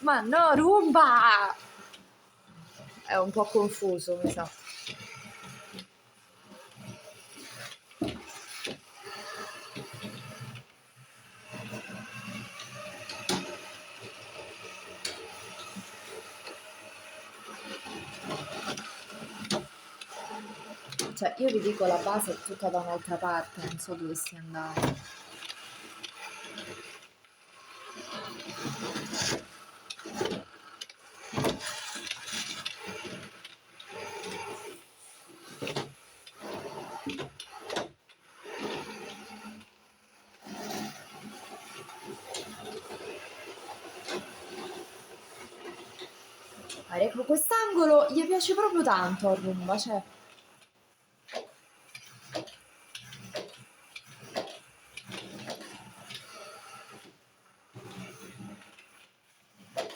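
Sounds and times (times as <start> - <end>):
robot vacuum driving: 0.1 - 2.0, 11.3 - 27.0, 31.1 - 50.4.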